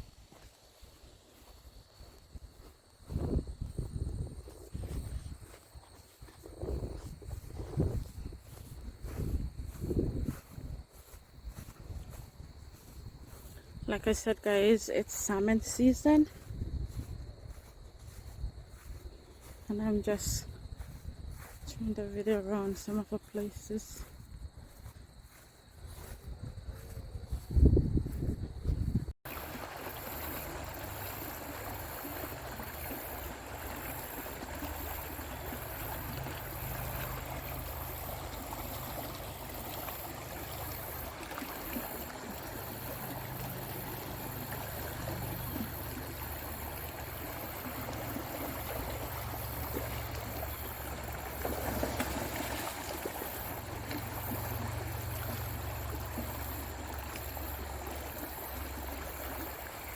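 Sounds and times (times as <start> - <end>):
creek water rushing: 29.3 - 59.9.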